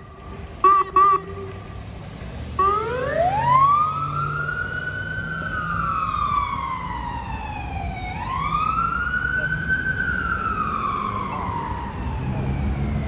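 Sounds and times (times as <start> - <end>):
low engine hum: 0.0 - 13.0
electronic siren wailing: 0.6 - 1.5, 2.6 - 6.9, 8.0 - 13.0.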